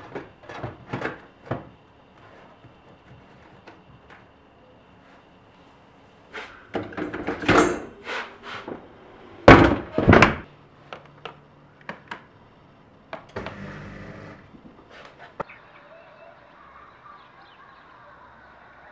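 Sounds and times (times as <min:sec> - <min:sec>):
heavy thunks: 0:08.6 - 0:10.5.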